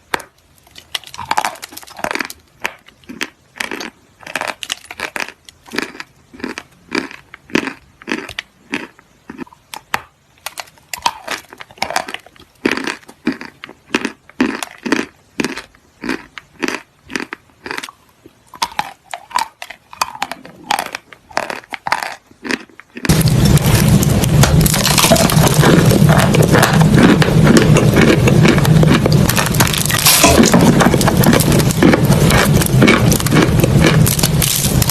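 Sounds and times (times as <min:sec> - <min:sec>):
crunching in short strokes: 0:18.6 - 0:34.9
loud dense continuous noise: 0:23.0 - 0:34.9.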